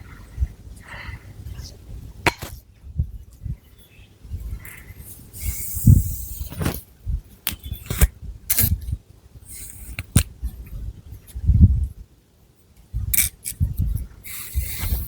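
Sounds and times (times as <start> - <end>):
fingernails scratching scalp: 14.4 - 15.0.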